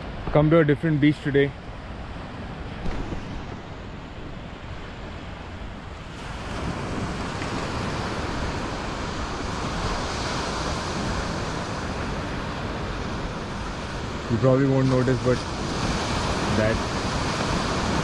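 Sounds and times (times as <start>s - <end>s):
sea waves washing onto beach: 0.0s - 18.0s
wind rumbling on microphone: 0.0s - 18.0s.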